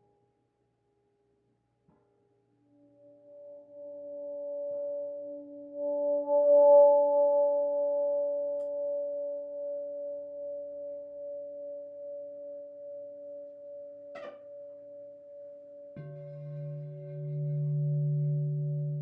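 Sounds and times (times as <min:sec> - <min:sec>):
low bowl struck and ringing: 0:03.2 - 0:10.1, 0:15.9 - 0:19.0.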